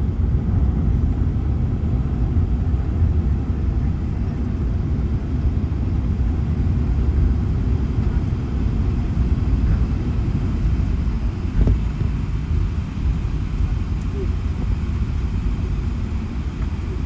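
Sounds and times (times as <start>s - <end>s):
aircraft cabin rumble: 0.0s - 17.0s.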